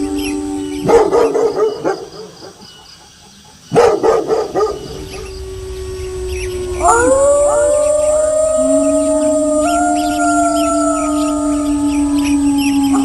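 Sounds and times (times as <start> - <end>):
dog barking: 0.8 - 2.5, 3.7 - 5.0
dog howling: 4.5 - 13.0.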